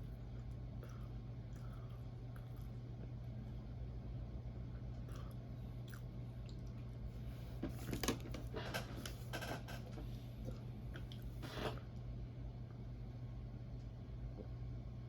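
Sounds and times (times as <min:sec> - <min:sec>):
wet chewing sounds: 0:00.0 - 0:03.2, 0:04.8 - 0:07.1, 0:10.4 - 0:11.6.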